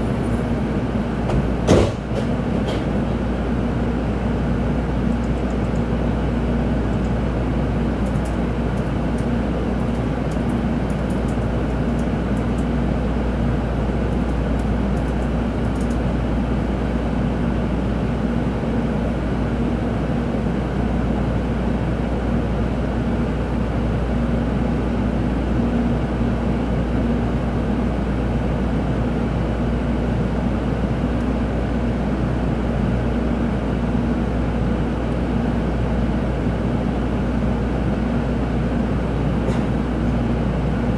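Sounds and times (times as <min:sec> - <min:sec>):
train cabin rumble: 0:00.0 - 0:03.4
steady hum: 0:00.0 - 0:40.9.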